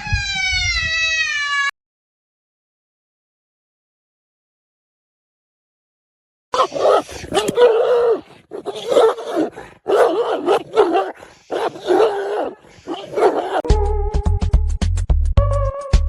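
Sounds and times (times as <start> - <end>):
pet animal wailing: 6.6 - 13.7.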